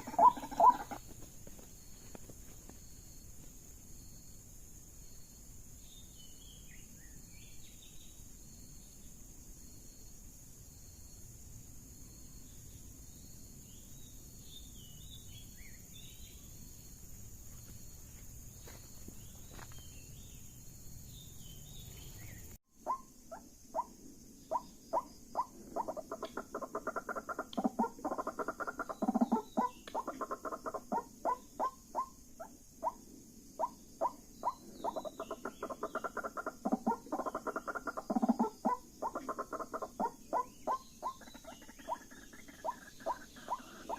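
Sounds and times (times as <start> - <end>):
waterhen harsh repeated call: 0.0 - 1.0
faint bird chirping: 0.0 - 43.9
insects chirping: 0.0 - 43.9.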